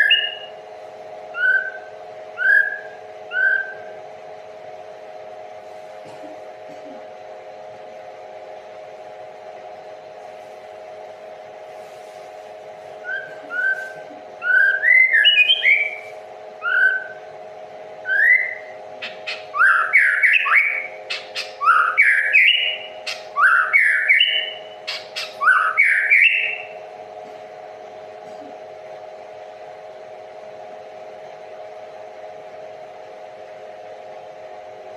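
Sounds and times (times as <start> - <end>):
songbird whistling: 0.0 - 0.5, 1.3 - 3.9, 13.0 - 17.2, 18.0 - 26.7
steady hum: 0.0 - 34.9.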